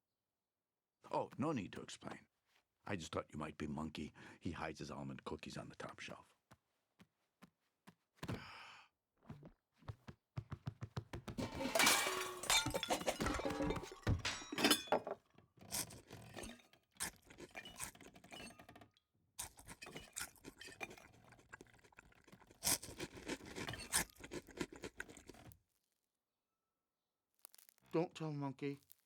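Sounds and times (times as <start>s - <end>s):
wooden knocks and scrapes: 9.3s - 16.4s
crockery clattering and clinking: 11.4s - 18.8s.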